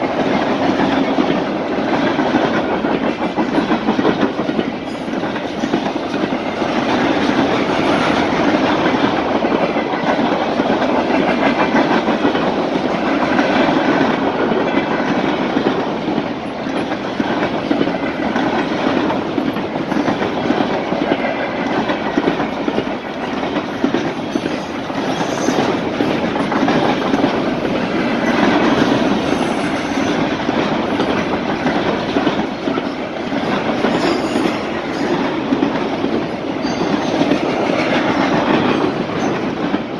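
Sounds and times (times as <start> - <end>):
freight train rolling past: 0.0 - 39.9.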